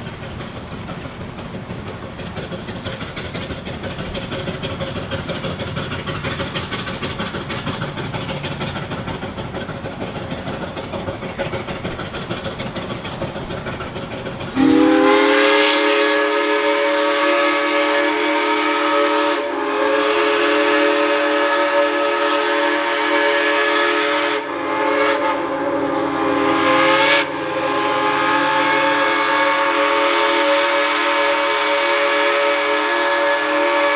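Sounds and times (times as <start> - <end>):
steam locomotive rushing: 0.0 - 33.9
chime steam whistle blowing: 14.6 - 33.9.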